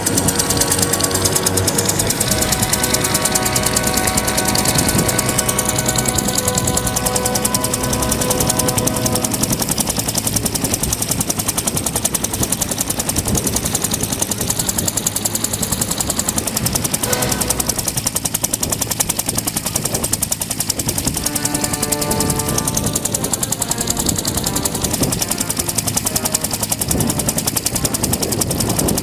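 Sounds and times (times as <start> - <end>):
helicopter rotor thudding: 0.0 - 29.0.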